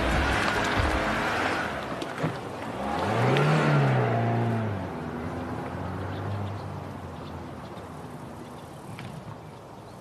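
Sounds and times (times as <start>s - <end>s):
car engine revving: 0.0s - 6.1s.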